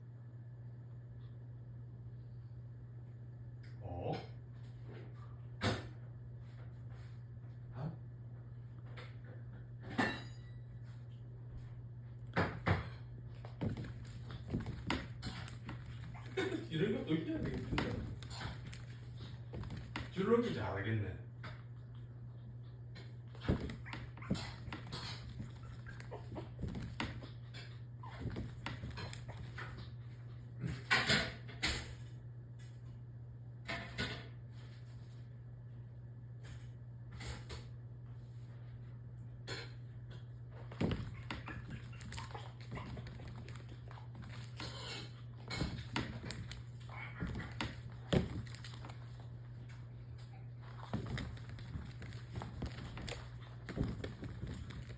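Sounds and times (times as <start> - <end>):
steady low hum: 0.0 - 54.9
puppy paws thumping on floor: 11.1 - 20.5, 22.9 - 31.2, 40.5 - 54.9
puppy claws clicking on floor: 50.6 - 54.9.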